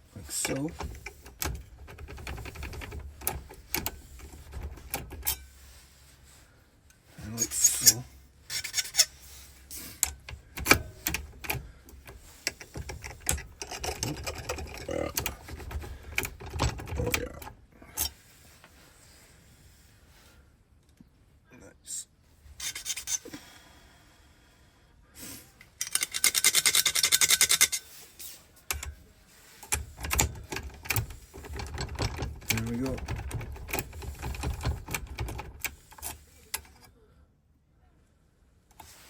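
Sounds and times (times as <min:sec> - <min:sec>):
metal key being filed: 0:00.4 - 0:05.6, 0:07.4 - 0:09.3, 0:10.0 - 0:18.1, 0:22.6 - 0:23.3, 0:25.8 - 0:29.0, 0:29.6 - 0:36.9.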